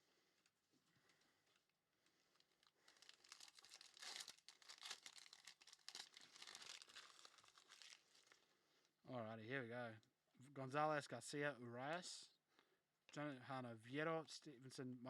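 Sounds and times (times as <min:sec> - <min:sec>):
wrapper crinkling and tearing: 0:02.3 - 0:08.4.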